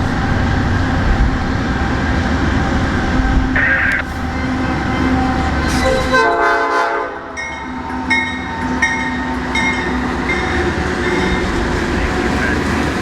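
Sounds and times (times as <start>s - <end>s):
freight train rumbling: 0.0s - 13.0s
locomotive air horn: 3.6s - 7.4s.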